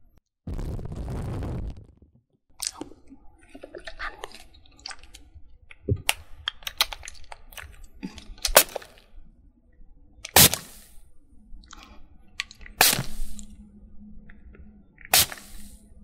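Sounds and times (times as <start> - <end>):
crisp clicks and crackles: 2.6 - 9.2, 11.6 - 13.6
loud snaps: 10.2 - 10.9, 12.7 - 13.5, 15.1 - 15.7.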